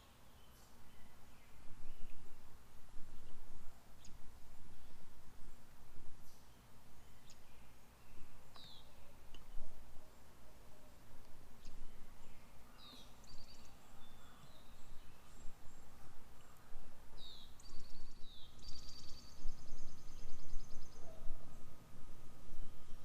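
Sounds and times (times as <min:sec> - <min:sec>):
low outdoor rumble: 0:00.0 - 0:23.0
songbird trilling: 0:17.2 - 0:21.3.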